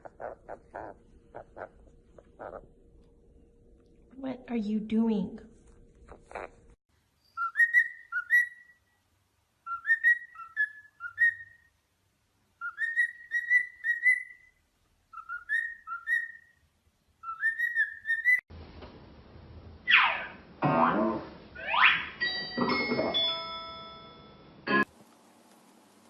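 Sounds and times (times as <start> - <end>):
bird whistling rising notes: 7.2 - 8.8, 12.6 - 14.5, 17.2 - 18.4.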